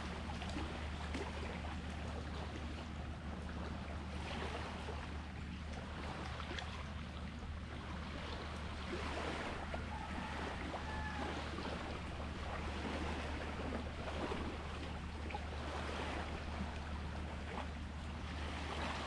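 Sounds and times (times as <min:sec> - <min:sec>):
sea waves washing on shore: 0:03.9 - 0:19.0.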